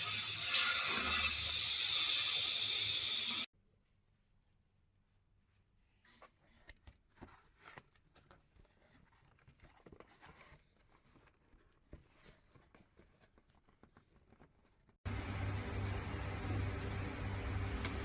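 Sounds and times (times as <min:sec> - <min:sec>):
faint clicks and rustles: 0:06.0 - 0:15.0.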